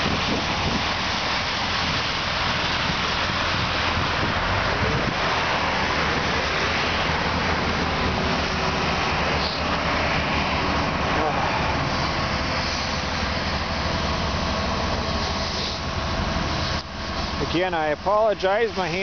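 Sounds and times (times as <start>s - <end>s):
rain hiss: 0.0s - 19.0s
truck diesel engines running: 0.0s - 19.0s
wind: 0.0s - 19.0s.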